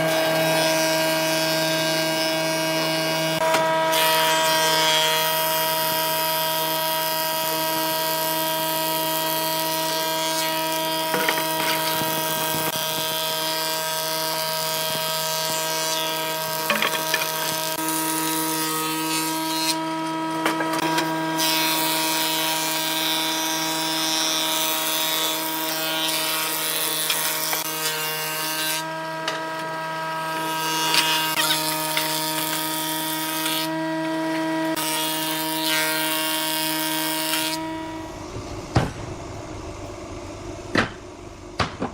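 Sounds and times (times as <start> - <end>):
tool knocking on wood: 41.6 - 41.9.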